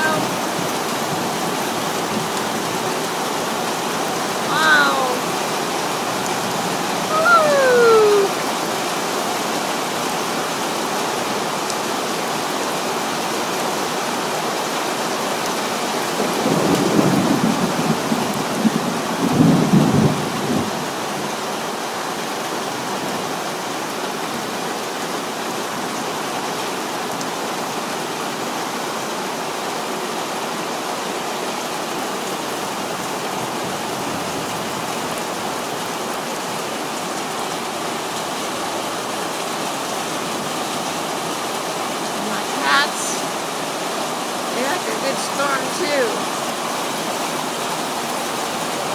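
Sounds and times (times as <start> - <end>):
heavy rain falling: 0.0 - 48.9.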